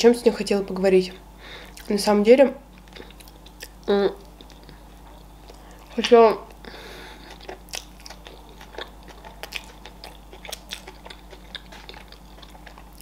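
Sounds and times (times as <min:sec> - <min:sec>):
person chewing food: 0:02.8 - 0:13.0.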